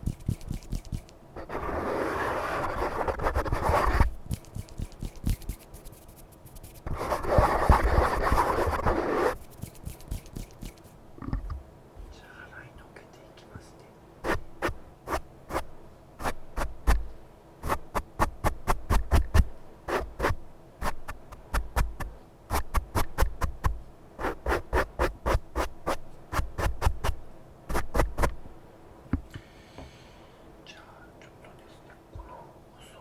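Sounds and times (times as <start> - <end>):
sharp scratching strokes: 0.0 - 11.0, 14.2 - 28.4.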